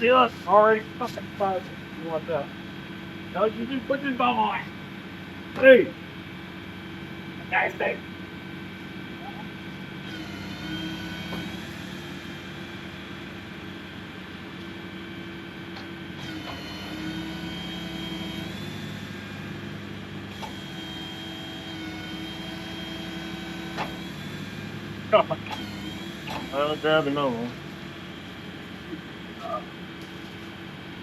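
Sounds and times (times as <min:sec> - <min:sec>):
diesel engine running under load: 0:00.0 - 0:31.0
high whine: 0:20.6 - 0:29.7.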